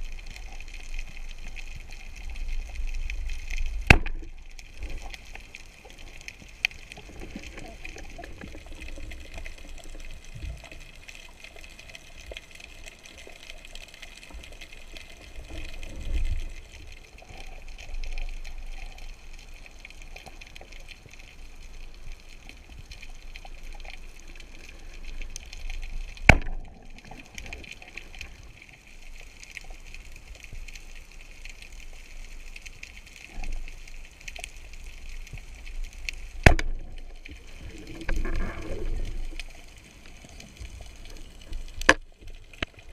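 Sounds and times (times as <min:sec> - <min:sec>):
moving water swells: 0:00.0 - 0:42.9
underwater crackling hiss: 0:00.0 - 0:42.9
sharp crack: 0:03.6 - 0:04.6, 0:26.2 - 0:26.7, 0:36.4 - 0:36.9.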